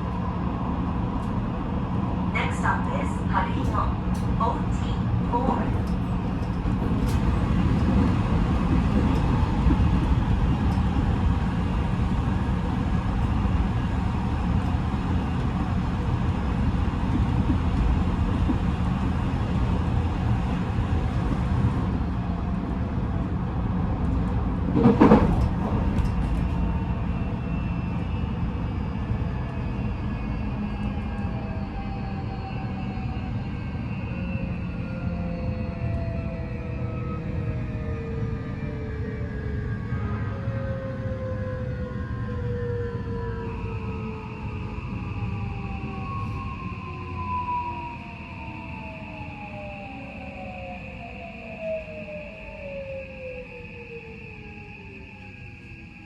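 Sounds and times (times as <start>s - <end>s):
wheel and rail rumble: 0.0s - 28.0s.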